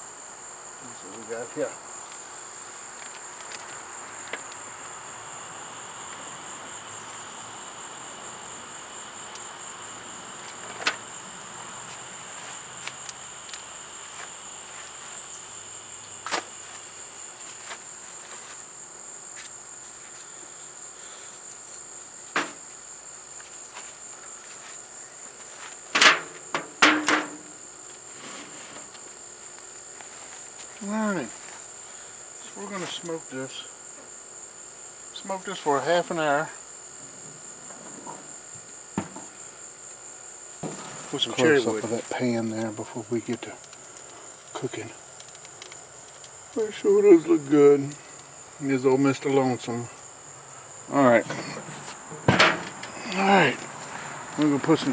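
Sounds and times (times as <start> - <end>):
crickets chirring: 0.0 - 54.9
loud clatters: 51.7 - 53.0.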